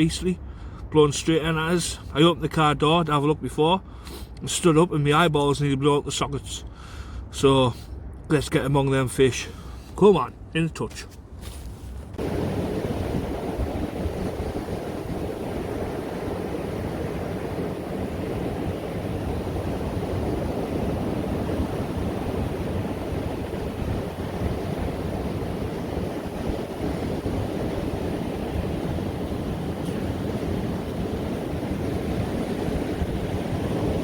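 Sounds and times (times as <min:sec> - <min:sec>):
wind buffeting microphone: 0:11.9 - 0:34.0
sea surf breaking: 0:12.2 - 0:34.0.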